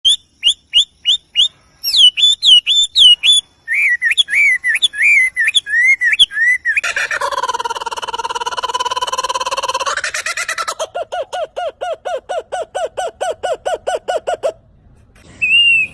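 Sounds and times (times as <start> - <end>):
bird whistling: 0.0 - 6.9, 15.3 - 15.9.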